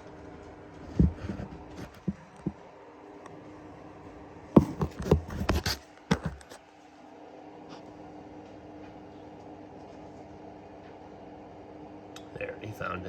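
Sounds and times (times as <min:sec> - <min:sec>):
steady low hum: 0:00.0 - 0:13.0
knocks and scrapes: 0:00.8 - 0:02.6, 0:04.6 - 0:06.6.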